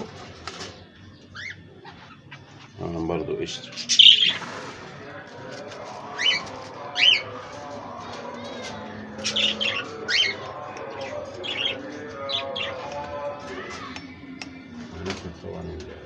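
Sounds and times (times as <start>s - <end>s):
low background chatter: 0.0s - 16.0s
budgerigars chirping: 1.0s - 4.6s, 6.1s - 7.3s, 9.2s - 13.1s.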